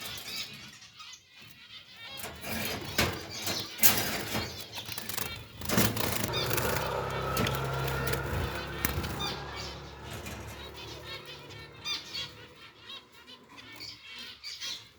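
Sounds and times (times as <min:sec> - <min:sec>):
finches chirping: 0:00.0 - 0:14.9
finches fluttering wings: 0:02.5 - 0:12.4
cage knocking and rattling: 0:05.6 - 0:13.0.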